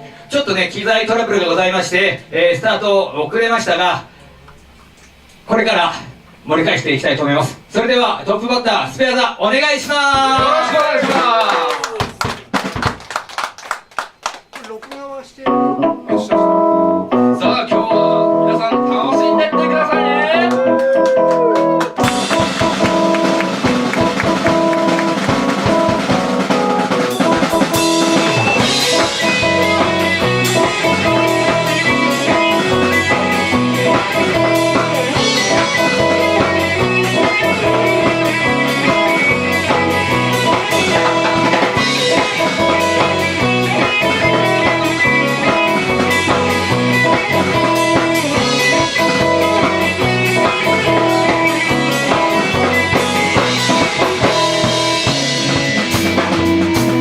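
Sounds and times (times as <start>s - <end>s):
drum beat: 9.8s - 14.4s, 21.4s - 57.0s
live rock band playing: 15.4s - 57.0s.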